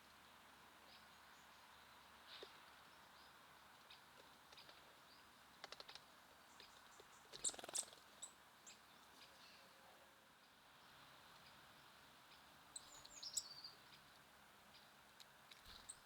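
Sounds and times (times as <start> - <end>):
small birds chipping: 0.7 - 16.0.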